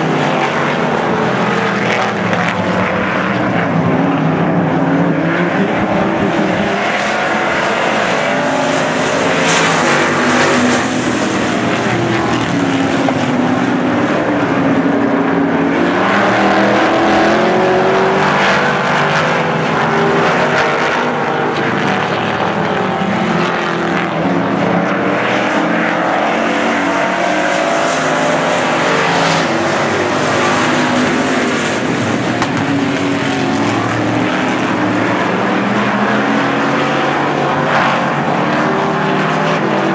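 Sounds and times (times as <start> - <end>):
race car engines: 0.0 - 39.9.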